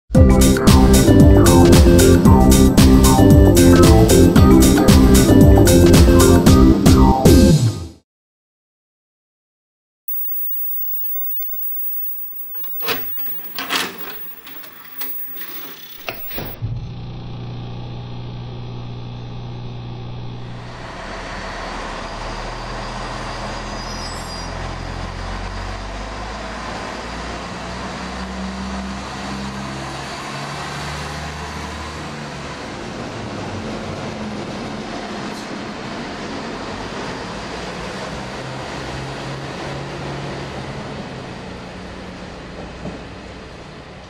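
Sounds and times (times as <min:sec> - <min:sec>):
diesel train engine: 0:20.5 - 0:44.0.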